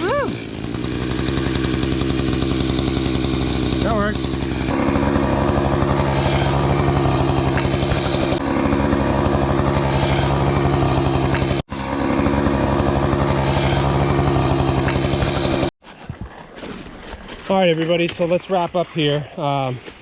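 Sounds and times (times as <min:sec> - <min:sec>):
small gasoline engine running: 0:00.0 - 0:15.7.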